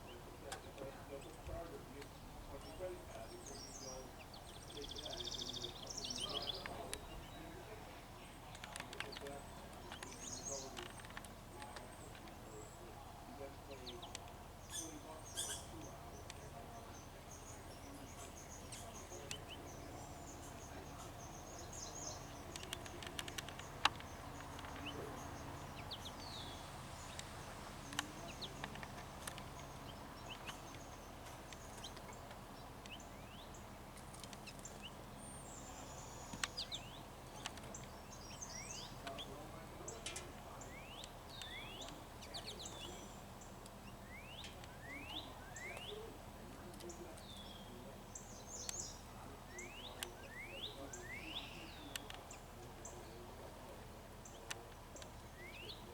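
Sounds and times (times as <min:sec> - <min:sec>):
faint background hiss: 0:00.0 - 0:55.9
small birds chirping: 0:00.0 - 0:55.9
sharp clicks: 0:08.4 - 0:12.4, 0:21.7 - 0:33.0, 0:36.2 - 0:39.3, 0:51.6 - 0:52.4.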